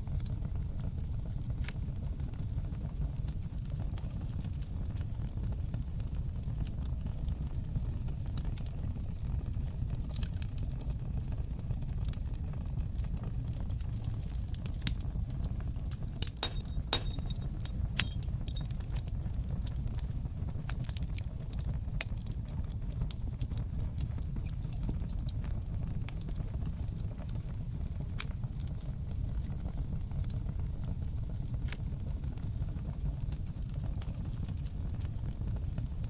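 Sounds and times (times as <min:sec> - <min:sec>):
fireplace fire crackling: 0:00.0 - 0:36.0.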